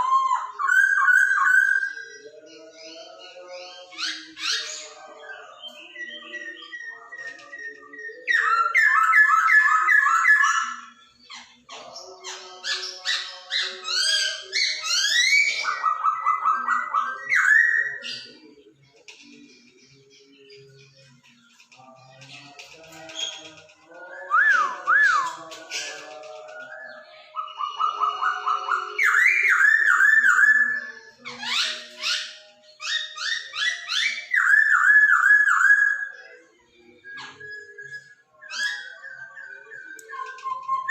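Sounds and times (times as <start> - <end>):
bird singing whistled song: 0.0 - 40.9
songbird whistling: 23.1 - 40.9.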